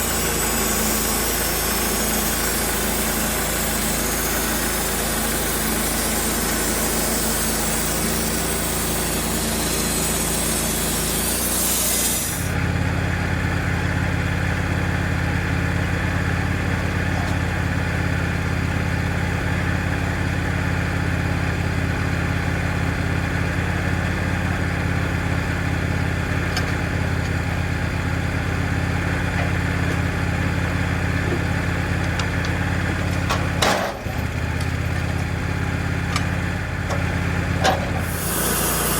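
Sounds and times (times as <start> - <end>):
saw blade cutting log hiss: 0.0 - 12.6, 37.9 - 38.9
band sawmill engine running: 0.0 - 38.9.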